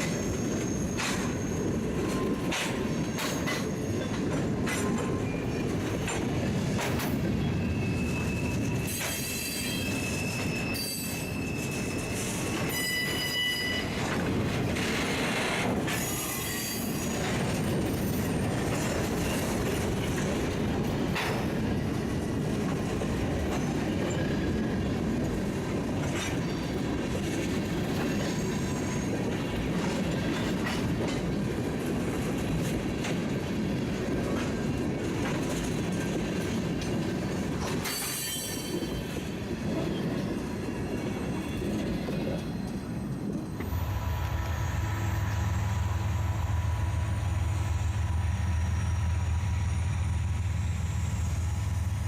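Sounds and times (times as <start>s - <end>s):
high wheel squeal: 0.0s - 4.2s, 7.4s - 14.2s, 15.0s - 17.4s, 37.8s - 42.8s
diesel locomotive drone: 0.0s - 52.0s
train wheel clicks over rail joints: 1.0s - 1.4s, 2.0s - 7.2s, 13.9s - 24.2s, 25.2s - 38.8s.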